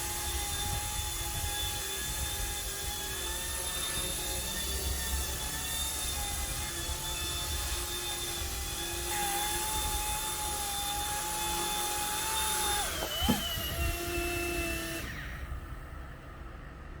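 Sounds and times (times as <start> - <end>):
toy helicopter motors whining: 0.0 - 15.7.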